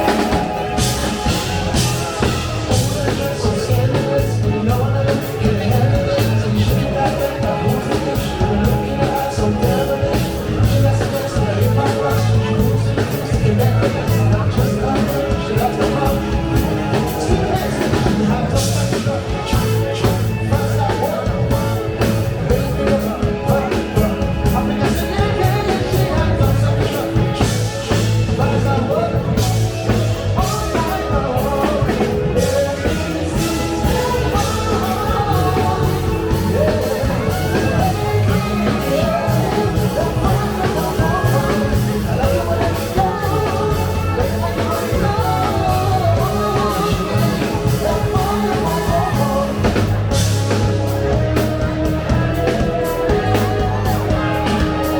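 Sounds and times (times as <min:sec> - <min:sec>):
funk band playing: 0:00.0 - 0:54.9
person singing: 0:00.0 - 0:54.9.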